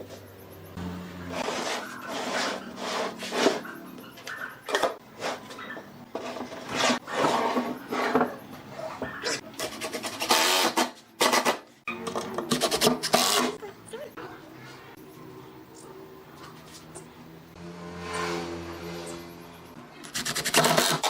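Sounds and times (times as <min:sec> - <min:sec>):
wood scraped by hand: 0:01.2 - 0:03.8, 0:05.2 - 0:08.4.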